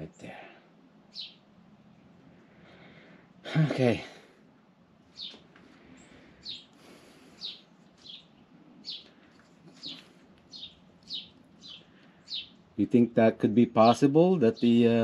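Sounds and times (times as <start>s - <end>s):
small bird chirping: 1.1s - 2.1s, 5.0s - 12.8s, 13.6s - 15.0s.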